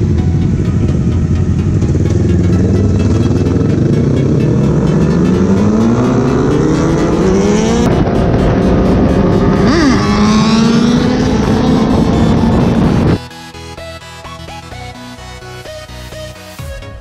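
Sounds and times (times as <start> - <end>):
motorcycle engine accelerating: 0.0 - 13.3.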